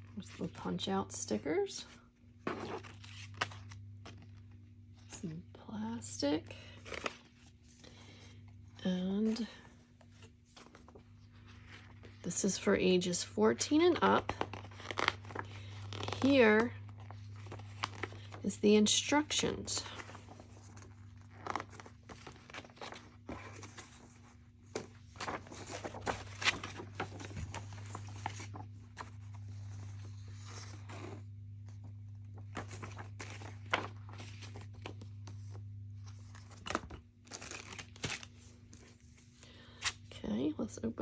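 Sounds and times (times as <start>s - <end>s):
low electrical hum: 0.0s - 41.0s
pages turning: 2.4s - 5.2s, 6.8s - 8.5s, 9.3s - 12.2s, 14.0s - 40.0s
paper rustling and crinkling: 2.4s - 5.2s, 9.3s - 12.3s, 13.7s - 40.1s.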